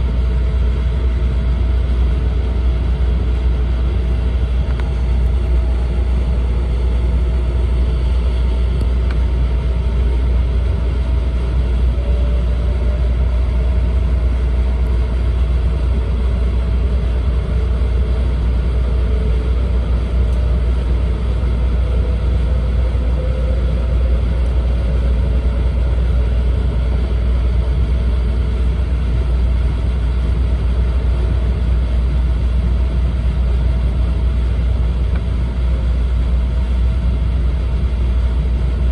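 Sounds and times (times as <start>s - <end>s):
faint whine: 0.0s - 38.9s
train running noise inside car: 0.0s - 38.9s.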